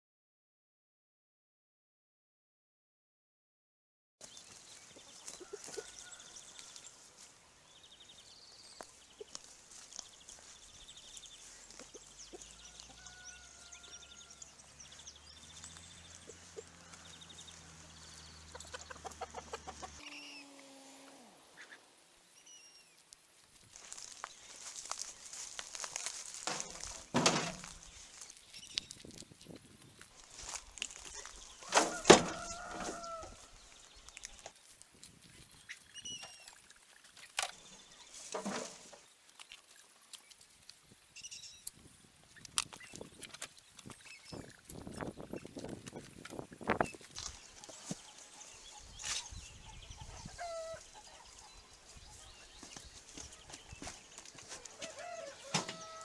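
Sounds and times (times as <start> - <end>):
chickens clucking: 11.4 - 13.2, 16.1 - 22.0, 43.0 - 52.5
hens calling: 16.1 - 22.7, 49.6 - 52.2, 54.5 - 56.0
faint high chirps: 20.0 - 23.0.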